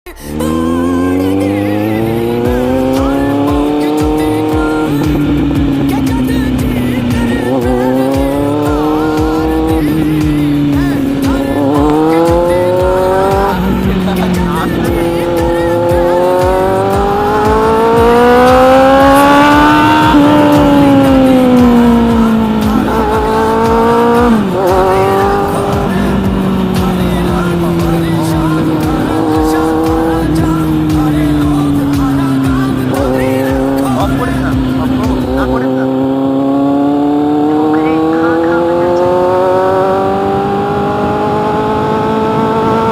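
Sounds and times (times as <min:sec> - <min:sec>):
motorcycle engine revving: 0:00.1 - 0:42.9.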